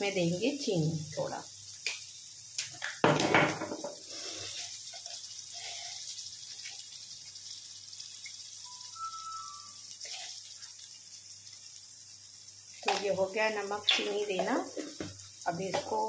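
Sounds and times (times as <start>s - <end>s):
vegetables sizzling in oil: 0.0s - 16.0s
faint short high tone: 8.6s - 9.8s.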